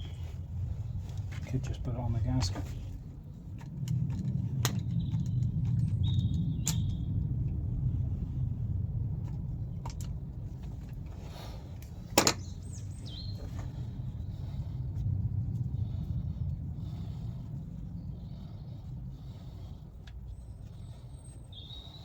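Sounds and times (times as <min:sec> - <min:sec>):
steady low rumble: 0:00.0 - 0:22.0
parts clicking and knocking: 0:03.4 - 0:07.0, 0:09.2 - 0:11.2, 0:11.8 - 0:12.6.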